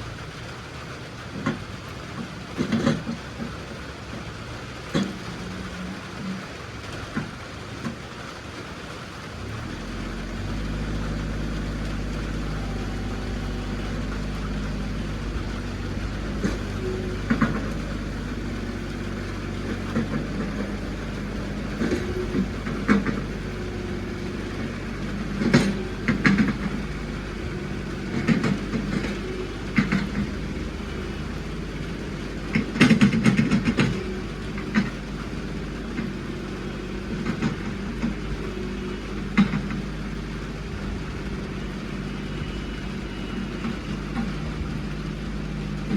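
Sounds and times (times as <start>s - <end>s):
farm vehicle engine running: 0.0s - 45.9s
clanks and rattles: 13.4s - 41.2s.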